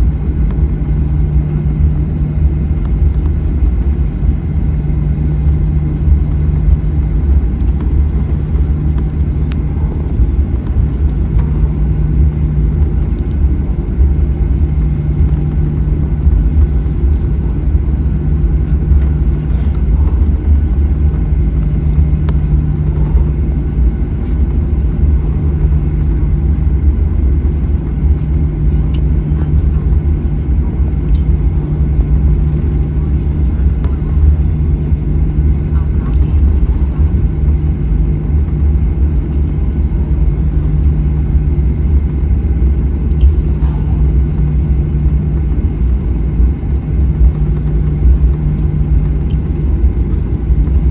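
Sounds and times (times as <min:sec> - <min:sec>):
jet cabin rumble: 0:00.0 - 0:50.9
low hum: 0:00.0 - 0:50.9.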